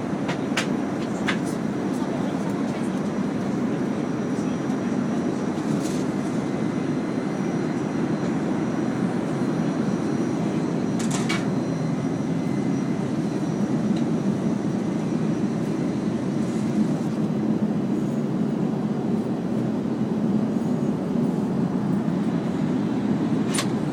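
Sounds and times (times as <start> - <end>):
airplane cabin rushing noise: 0.0 - 6.7, 10.4 - 11.6, 13.0 - 19.8, 20.4 - 23.9.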